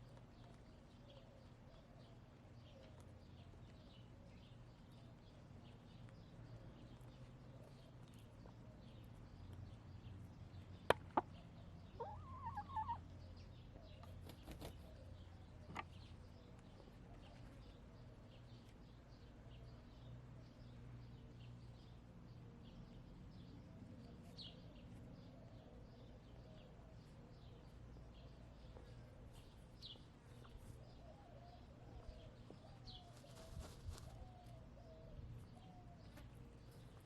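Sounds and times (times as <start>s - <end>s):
birds chirping: 0.0s - 37.0s
hens murmuring: 10.8s - 15.9s
rustle: 23.8s - 37.0s.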